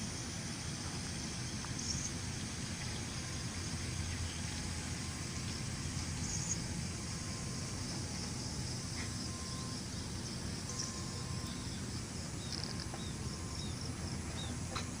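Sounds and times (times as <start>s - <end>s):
small birds chirping: 8.9s - 14.7s.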